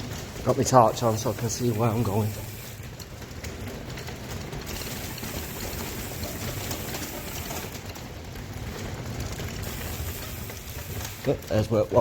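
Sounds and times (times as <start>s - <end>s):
bike tyres rolling rumble: 0.0s - 12.0s
faint mechanical rattle: 0.0s - 12.0s.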